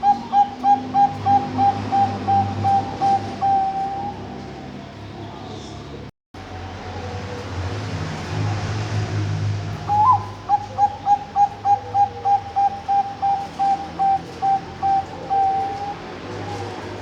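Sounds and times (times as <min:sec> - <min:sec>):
dove cooing: 0:00.0 - 0:04.7, 0:09.8 - 0:17.0.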